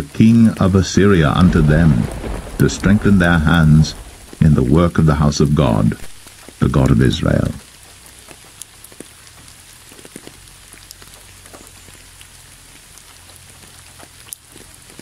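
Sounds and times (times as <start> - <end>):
light rain pattering: 0.0 - 15.0
drops ticking: 1.2 - 7.4.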